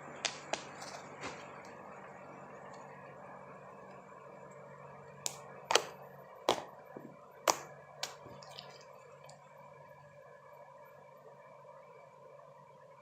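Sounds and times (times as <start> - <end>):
low background hum: 0.0 - 13.0
sharp clicks or taps: 5.3 - 5.9, 7.5 - 8.2.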